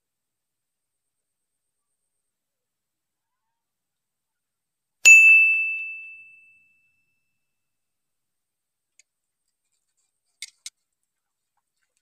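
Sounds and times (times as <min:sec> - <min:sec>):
bite bell ringing: 0:05.1 - 0:06.7
fishing rod clicks: 0:10.3 - 0:10.8.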